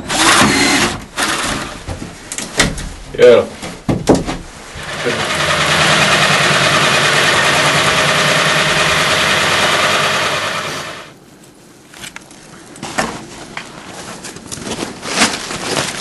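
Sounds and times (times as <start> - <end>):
power tool motor buzzing: 4.8 - 11.1.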